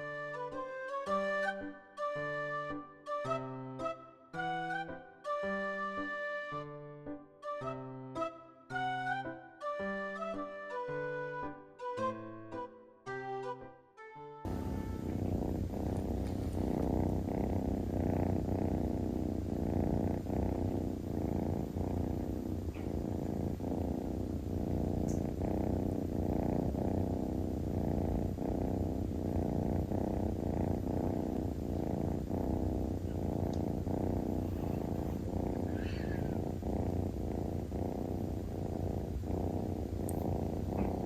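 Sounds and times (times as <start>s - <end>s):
cat purring: 14.4s - 41.0s.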